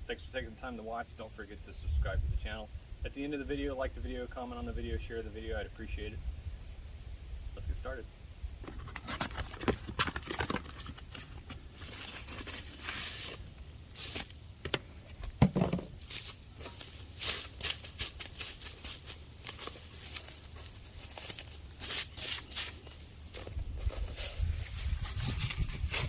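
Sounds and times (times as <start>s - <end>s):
crinkling tearing handling noise: 8.6s - 15.4s, 16.0s - 26.0s.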